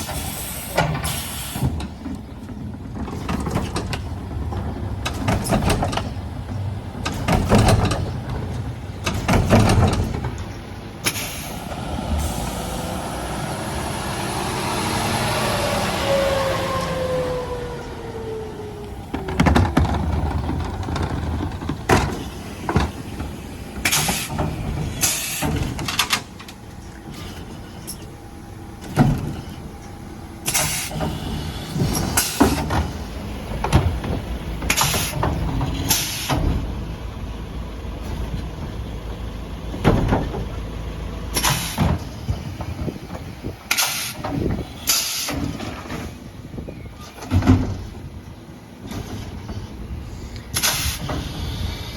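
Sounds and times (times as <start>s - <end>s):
bins knocking and banging: 1.7s - 10.6s, 19.0s - 26.4s
short hisses of air: 50.6s - 51.9s.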